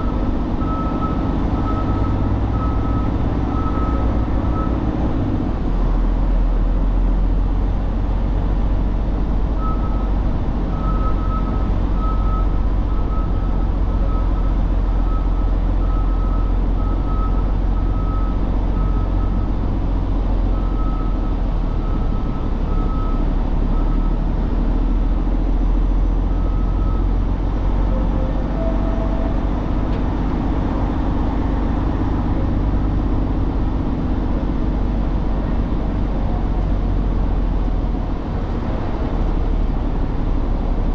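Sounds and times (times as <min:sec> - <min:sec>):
truck diesel engine rumbling: 0:00.0 - 0:40.9
back-up alarm beeping: 0:27.8 - 0:31.2.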